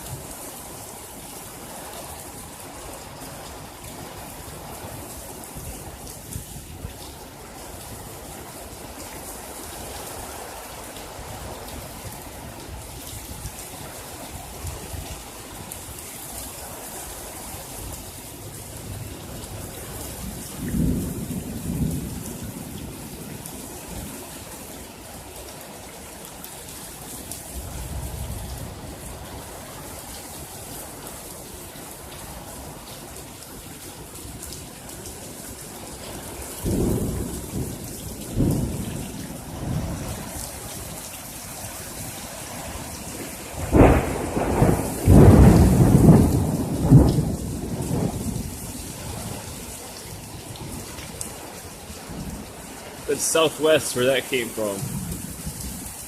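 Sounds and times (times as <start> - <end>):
rain hissing: 0.0 - 33.1, 34.0 - 56.0
thunder rumbling: 43.5 - 48.6.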